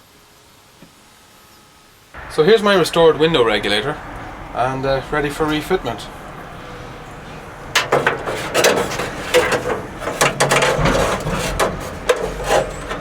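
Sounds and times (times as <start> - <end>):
metallic clicks and rattles of mechanism: 7.8 - 13.0.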